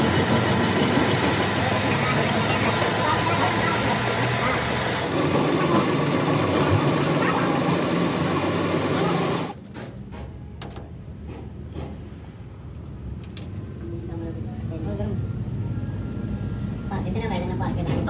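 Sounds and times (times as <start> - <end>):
machine working metal: 0.0 - 9.6.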